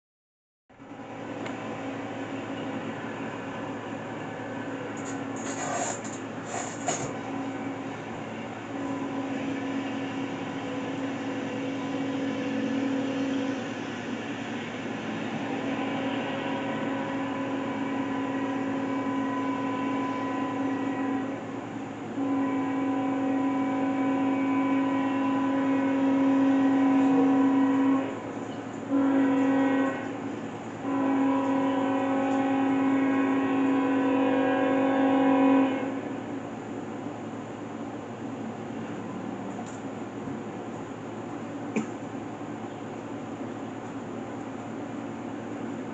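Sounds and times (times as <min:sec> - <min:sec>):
passing train rumble: 0:00.7 - 0:45.9
locomotive air horn blasts: 0:04.6 - 0:13.7, 0:15.4 - 0:36.2.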